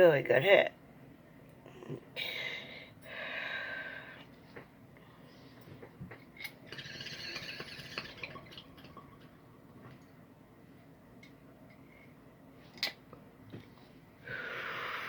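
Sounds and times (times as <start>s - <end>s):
person exhaling hard: 14.2s - 15.0s.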